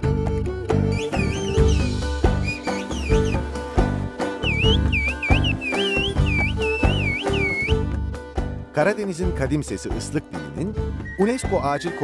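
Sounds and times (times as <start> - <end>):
background music with beat: 0.0 - 8.6
human whistled speech: 11.1 - 12.0.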